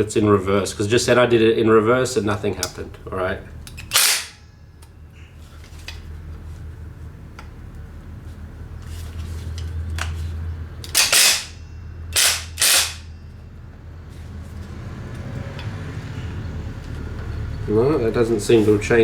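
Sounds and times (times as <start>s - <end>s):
impact driver hammering: 3.8s - 4.4s, 10.8s - 13.2s.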